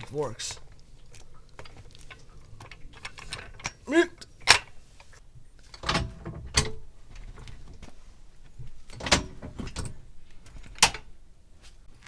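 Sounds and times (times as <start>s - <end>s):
metallic car jack clunks: 5.7s - 6.9s, 8.9s - 10.0s.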